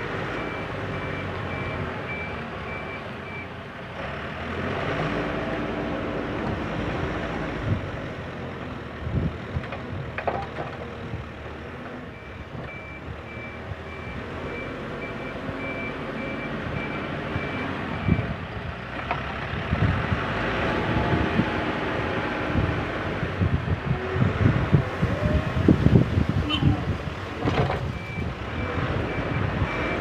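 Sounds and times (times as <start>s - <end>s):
diesel engine working: 0.0s - 30.0s
reversing alarm beeping: 12.2s - 18.3s, 28.0s - 30.0s.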